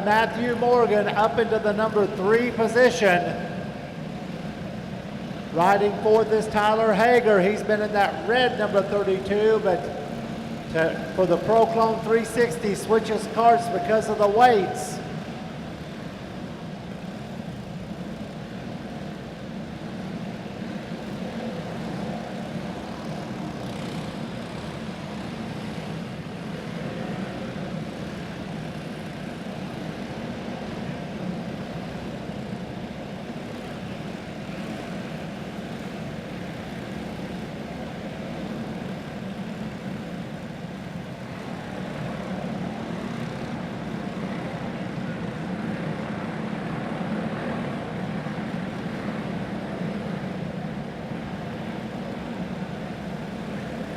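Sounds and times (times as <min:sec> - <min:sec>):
racing karts engines droning: 0:00.0 - 0:53.9.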